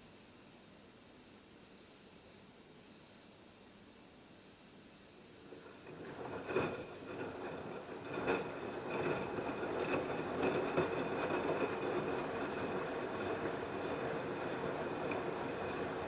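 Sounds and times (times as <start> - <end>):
faint high whine: 0.0 - 16.0
washing machine churning: 5.3 - 16.0.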